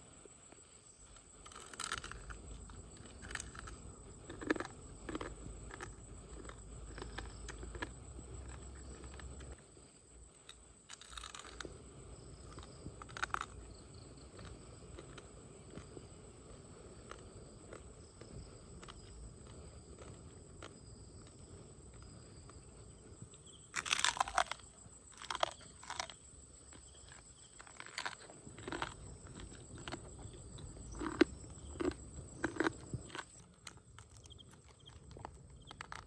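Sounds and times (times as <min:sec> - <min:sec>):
crunching crab shell: 0:01.3 - 0:09.6, 0:10.4 - 0:11.7, 0:12.4 - 0:15.9, 0:23.7 - 0:36.0.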